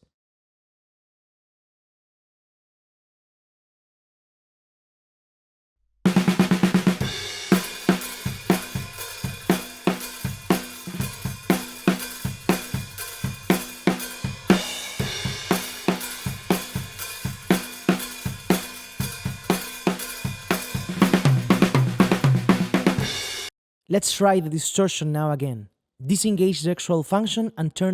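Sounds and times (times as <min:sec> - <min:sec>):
drum fill: 0:06.1 - 0:23.5
drum kit playing groove: 0:06.1 - 0:23.5.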